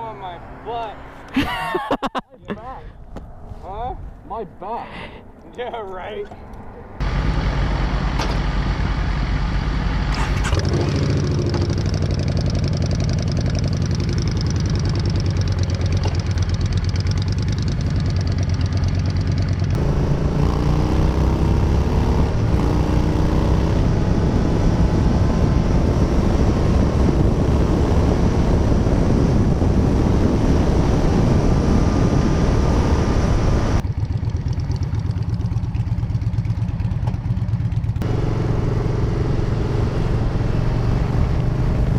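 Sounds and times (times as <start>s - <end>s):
motorcycle engine running: 7.0s - 41.9s
wind rush over microphone: 19.8s - 33.8s.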